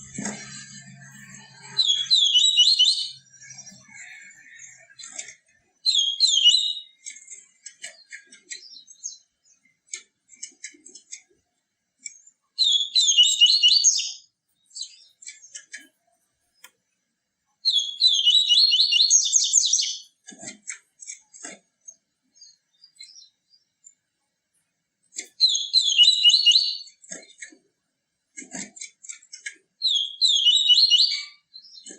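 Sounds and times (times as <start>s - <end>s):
bird twittering song: 0.0s - 10.1s, 12.0s - 16.8s, 17.6s - 20.2s, 21.8s - 24.0s, 25.1s - 27.0s, 29.8s - 31.9s.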